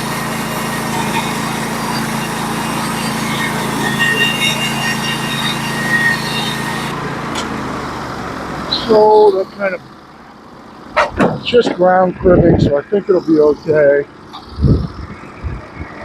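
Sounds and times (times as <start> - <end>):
band blade sawing through log: 0.0 - 7.0
sawmill gas engine running: 0.0 - 15.0.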